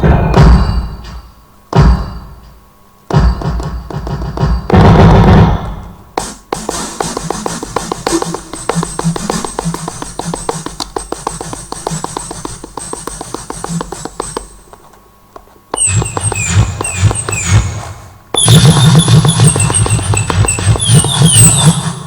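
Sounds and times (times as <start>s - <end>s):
synth percussive hits: 0.0s - 2.5s, 3.1s - 14.7s, 15.8s - 22.0s
falling high synth tones: 15.8s - 22.0s.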